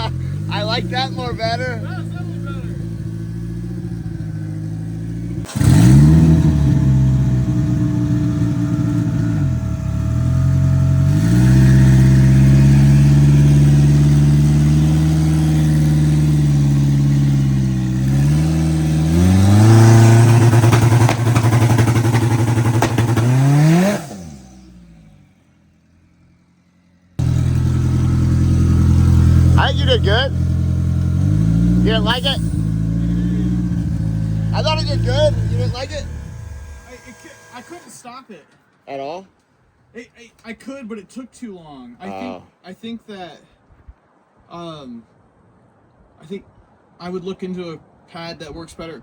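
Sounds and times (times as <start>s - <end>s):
drag car engine revving: 0.0s - 25.8s, 26.4s - 38.0s.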